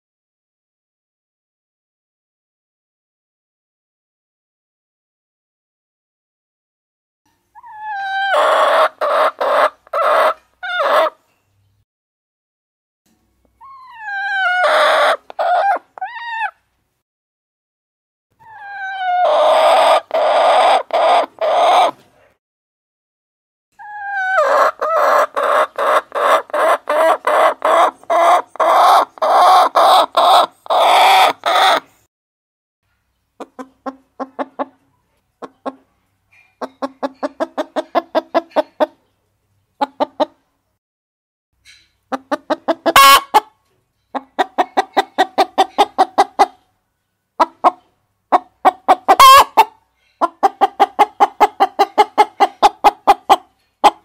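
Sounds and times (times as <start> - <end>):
harsh hen calls: 7.6 - 11.2, 13.6 - 16.6, 18.4 - 22.0, 23.8 - 31.9, 42.1 - 43.5, 47.4 - 49.8
hens clucking: 7.6 - 11.2, 13.9 - 16.6, 18.5 - 22.0, 23.8 - 31.9, 33.4 - 35.9, 36.6 - 39.1, 39.8 - 40.4, 42.1 - 46.7, 47.4 - 54.0.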